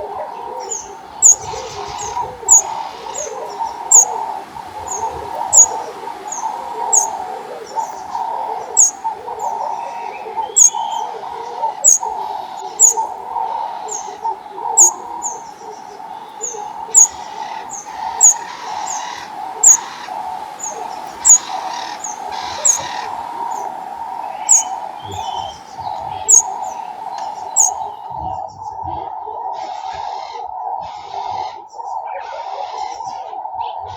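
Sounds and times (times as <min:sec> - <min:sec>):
garden birds chirping: 0:00.0 - 0:33.9.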